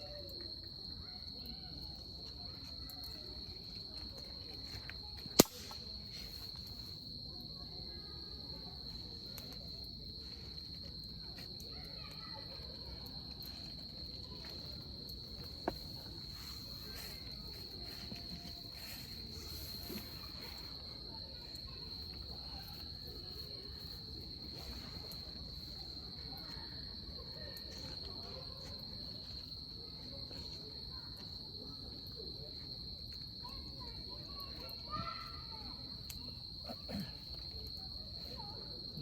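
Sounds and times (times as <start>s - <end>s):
campfire crackling: 2.8s - 7.2s.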